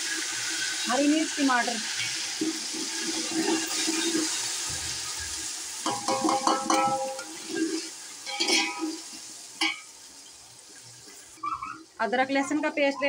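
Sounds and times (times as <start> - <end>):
vegetables sizzling in hot oil: 0.0 - 13.0
metal spoon scraping a pot: 5.9 - 9.0.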